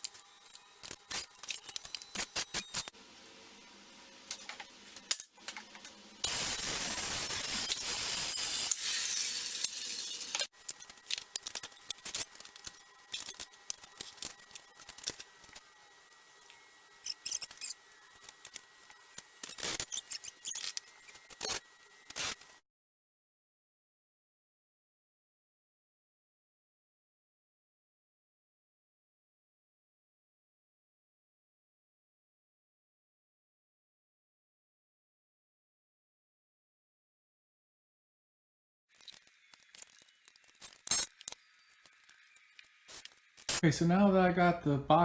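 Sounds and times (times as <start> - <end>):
tool hissing: 6.2 - 22.6, 40.2 - 43.6.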